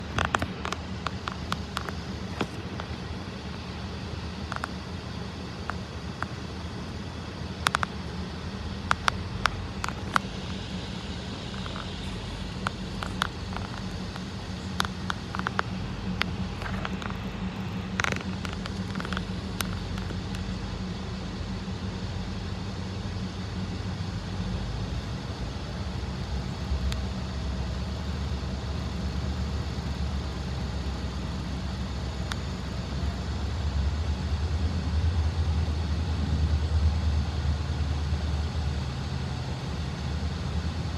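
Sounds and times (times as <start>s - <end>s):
sharp clicks: 0.0s - 3.0s, 5.6s - 6.4s, 8.8s - 20.5s
vehicle engine rumble: 0.0s - 40.9s.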